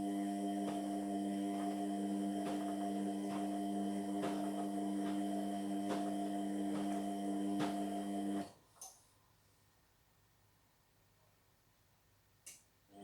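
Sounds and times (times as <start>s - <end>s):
washing machine motor hum: 0.0s - 8.5s.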